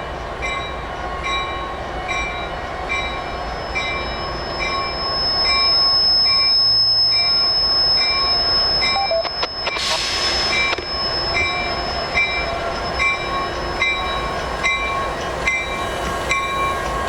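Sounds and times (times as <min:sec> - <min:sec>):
train wheel squeal: 0:00.4 - 0:17.0
loud burst of noise: 0:09.4 - 0:12.0.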